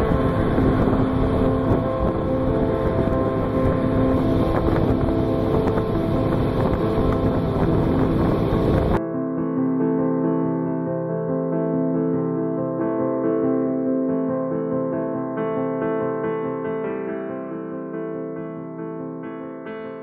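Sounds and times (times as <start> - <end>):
motorboat running: 0.0 - 9.0
wind buffeting microphone: 0.0 - 9.0
keyboard music: 0.0 - 20.0.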